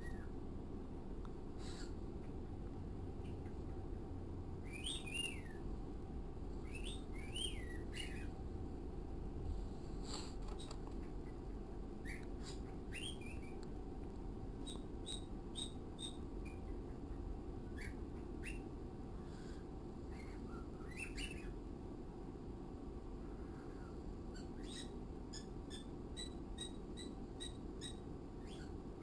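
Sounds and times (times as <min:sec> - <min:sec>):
birds chirping: 0:00.0 - 0:00.4, 0:03.1 - 0:05.7, 0:06.4 - 0:08.6, 0:10.2 - 0:13.9, 0:14.6 - 0:21.7, 0:23.2 - 0:29.0
steady low hum: 0:00.0 - 0:29.0.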